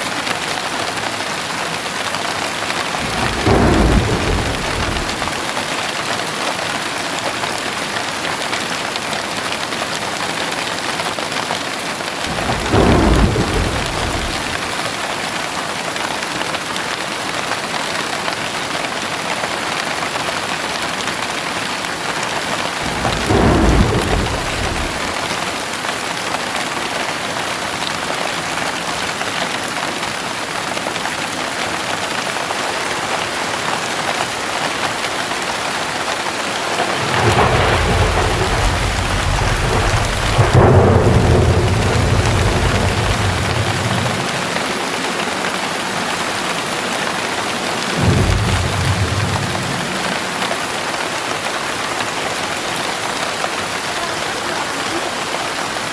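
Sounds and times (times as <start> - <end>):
heavy rain falling: 0.0 - 55.9
thunder rumbling: 2.6 - 5.9, 12.2 - 15.2, 22.4 - 26.3, 35.0 - 52.6.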